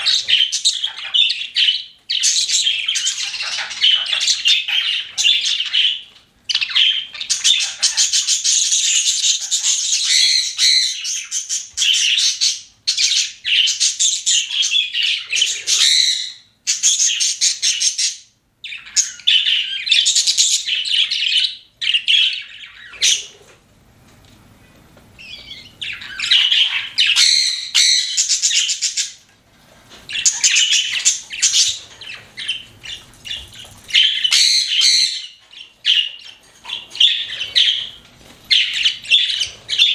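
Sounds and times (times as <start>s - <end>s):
budgerigars chirping and warbling: 0.0s - 23.6s, 25.2s - 29.3s, 29.9s - 39.9s.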